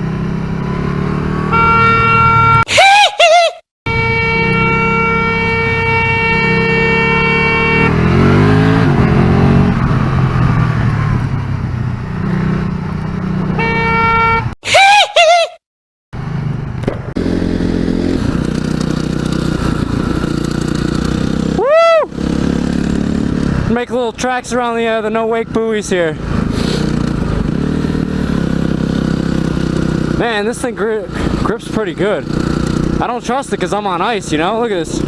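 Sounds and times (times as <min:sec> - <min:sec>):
motorcycle engine revving: 0:00.0 - 0:02.6, 0:03.9 - 0:14.6, 0:16.2 - 0:35.0
vehicle horn blaring: 0:01.4 - 0:02.7, 0:03.9 - 0:08.4, 0:13.6 - 0:14.6.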